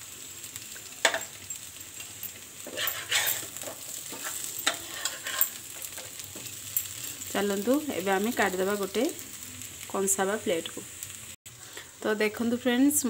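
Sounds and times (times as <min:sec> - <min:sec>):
potatoes sizzling in a pan: 0:00.0 - 0:13.0
metal spatula scraping a pan: 0:01.0 - 0:07.2.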